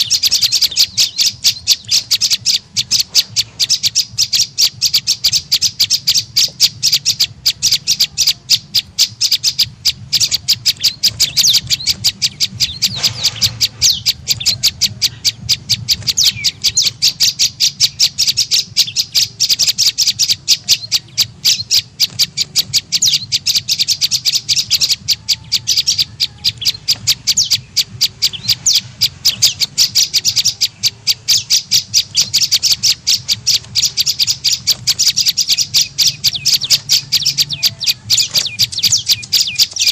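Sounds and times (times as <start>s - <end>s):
bird high chipping call: 0.0s - 39.9s.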